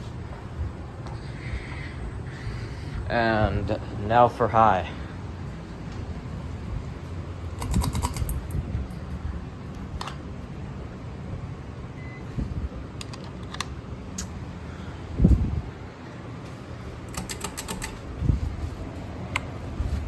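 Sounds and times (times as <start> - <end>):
ceiling fans humming: 0.0 - 20.0
sharp clicks: 7.6 - 8.6, 17.1 - 18.0.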